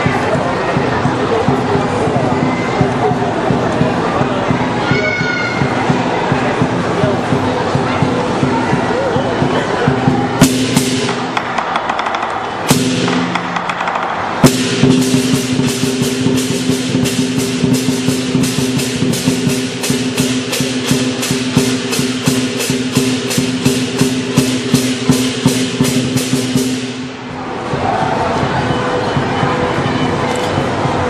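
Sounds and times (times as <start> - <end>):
drum: 0.0 - 29.9, 30.6 - 31.0
cymbals crashing: 9.2 - 31.0.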